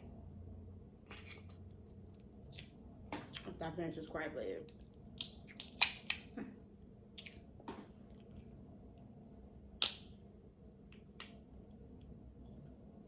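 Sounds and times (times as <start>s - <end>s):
crab shell cracking: 4.7s - 6.3s.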